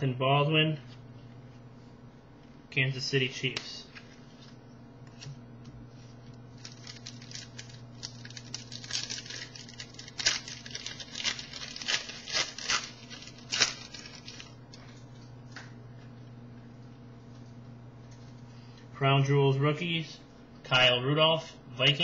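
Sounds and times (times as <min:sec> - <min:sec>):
wrapper tearing and crinkling: 0:06.5 - 0:14.6.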